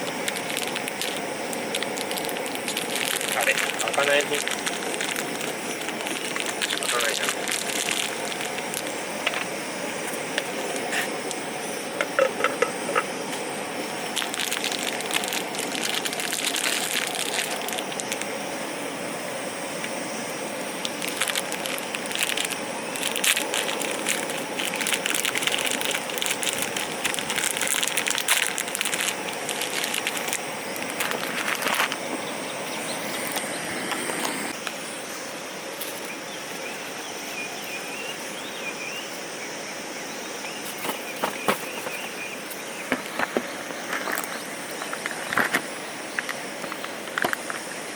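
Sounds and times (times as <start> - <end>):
campfire crackling and popping: 0.0 - 35.0
steady hiss: 0.0 - 47.9.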